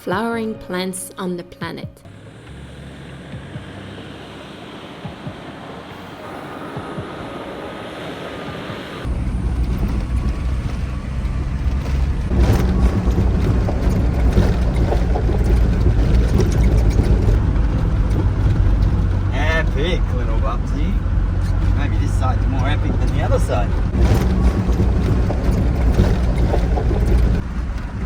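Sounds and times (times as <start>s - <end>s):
steady rushing noise: 2.1s - 28.0s
vehicle low rumble on gravel: 9.0s - 28.0s.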